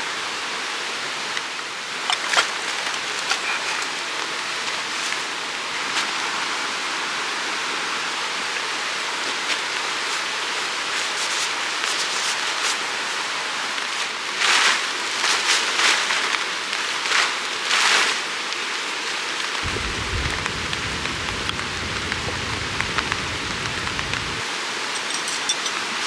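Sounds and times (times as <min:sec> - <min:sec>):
water surges: 0:19.6 - 0:25.2
rushing water hiss: 0:19.6 - 0:26.0.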